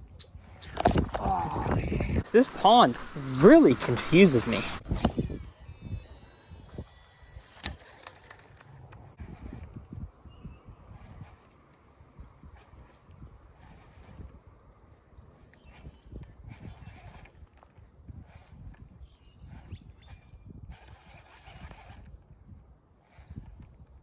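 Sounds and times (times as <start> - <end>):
bird call sliding downward: 0.6 - 10.2.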